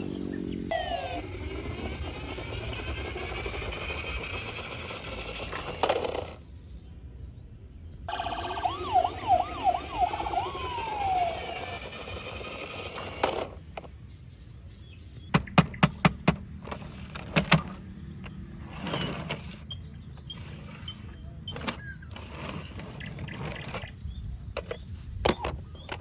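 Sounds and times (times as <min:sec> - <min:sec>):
electronic toy siren whoops: 0:00.7 - 0:02.6, 0:08.1 - 0:13.2.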